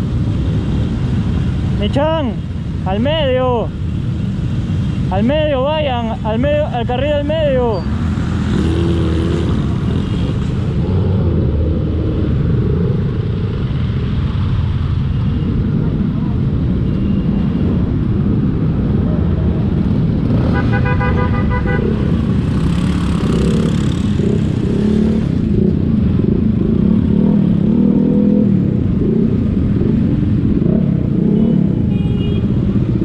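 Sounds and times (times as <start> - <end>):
motorcycle engines running: 0.0 - 33.0
vehicle horn honking: 20.4 - 22.1.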